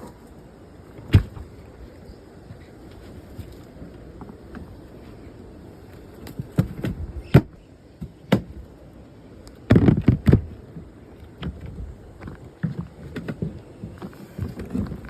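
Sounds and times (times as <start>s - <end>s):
sharp knocks and thumps: 9.7s - 10.6s.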